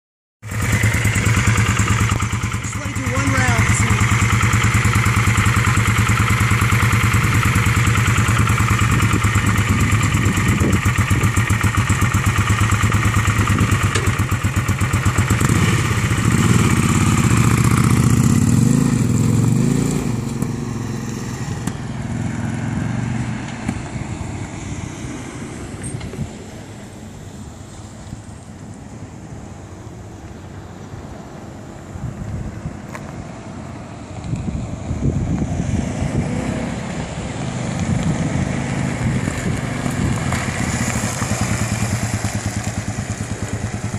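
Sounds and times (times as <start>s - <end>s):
motorcycle engine idling: 0.4s - 19.5s, 38.8s - 43.9s
motorcycle revving and riding off: 0.4s - 26.4s, 34.3s - 43.9s.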